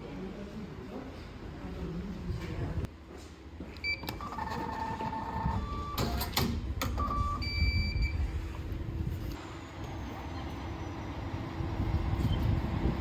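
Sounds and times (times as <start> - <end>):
short electronic beeps: 7.0 - 8.2.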